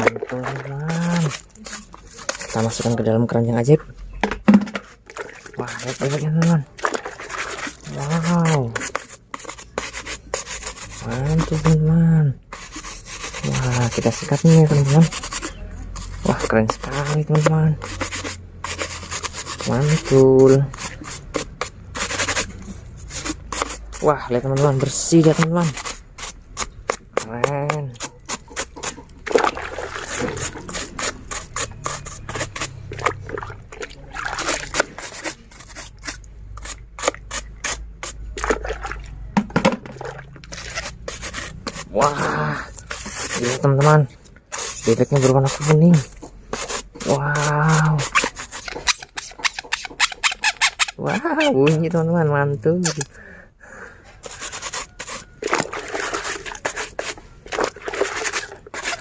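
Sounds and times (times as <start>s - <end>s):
brush scrubbing plastic toy: 0.0s - 3.6s, 4.5s - 39.0s, 40.3s - 53.2s, 54.2s - 59.0s
water trickling and splashing: 4.8s - 11.8s, 27.2s - 48.7s, 54.3s - 59.0s.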